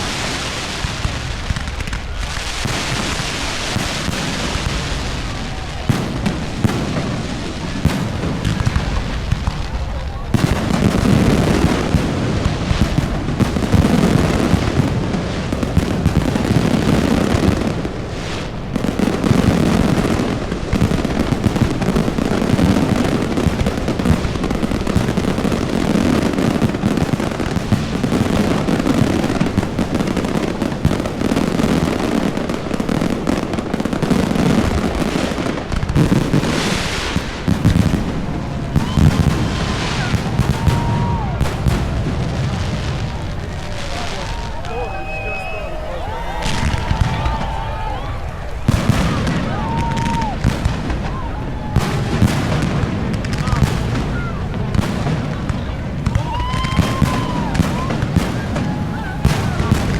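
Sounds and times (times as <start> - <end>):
fireworks bursts and crackle: 0.0 - 59.9
firework whistling glide: 43.7 - 52.0.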